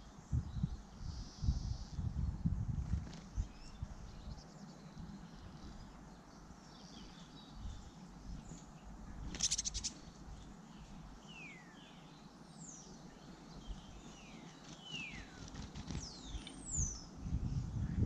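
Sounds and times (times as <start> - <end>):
birds chirping: 3.3 - 17.7.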